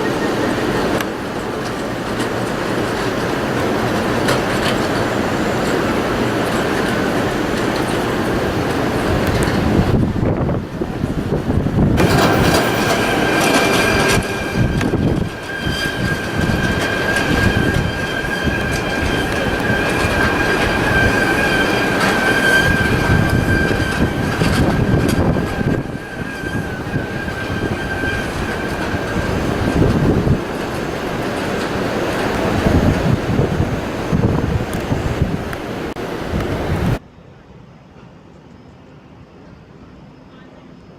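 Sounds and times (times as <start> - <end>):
tram wheels rumbling over planks: 0.6 - 37.0
high whine: 8.4 - 29.9.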